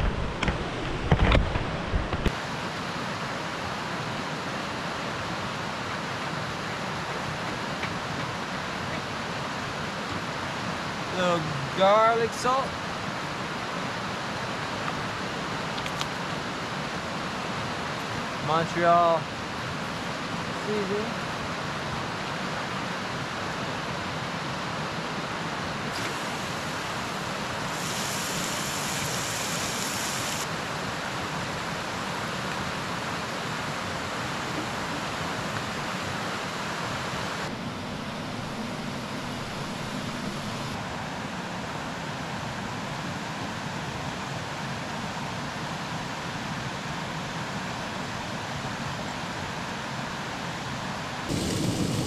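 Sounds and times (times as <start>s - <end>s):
meat sizzling in a pan: 27.7s - 30.4s.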